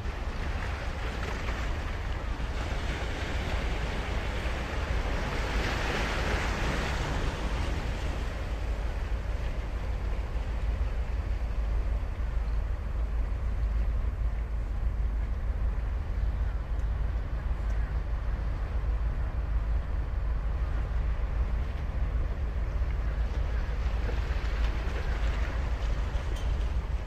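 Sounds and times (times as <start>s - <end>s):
ocean surf breaking on beach: 0.0s - 9.9s
steady low rumble: 0.0s - 27.0s.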